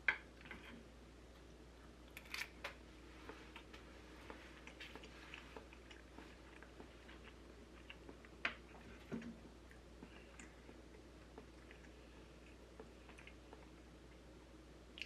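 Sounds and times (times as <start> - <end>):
person chewing: 3.2 - 14.3.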